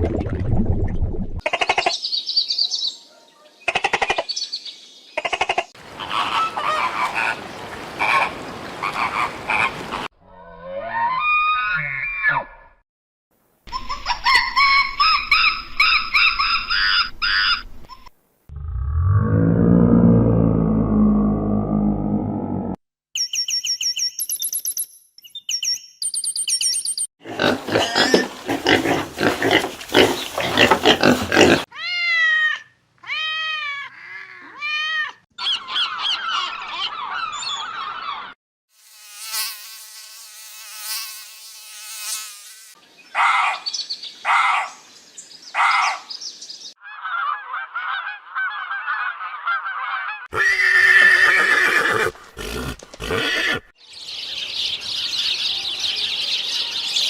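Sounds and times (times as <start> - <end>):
animal trill: 27.2 - 32.3.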